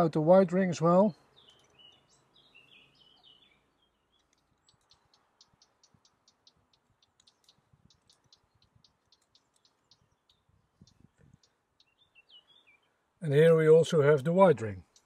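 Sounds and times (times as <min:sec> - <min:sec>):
faint birds chirping: 0:00.0 - 0:15.0
faint high ticks: 0:04.2 - 0:11.6.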